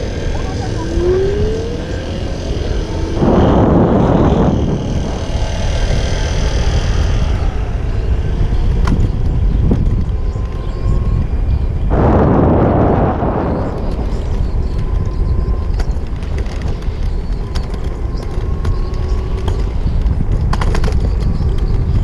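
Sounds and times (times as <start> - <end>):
street traffic: 0.0 - 22.0
wind rumble: 0.0 - 22.0.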